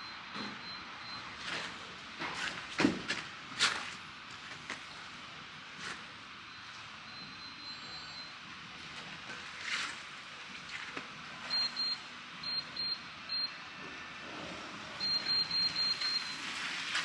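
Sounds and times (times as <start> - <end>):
keypad beeps: 15.0 - 16.4.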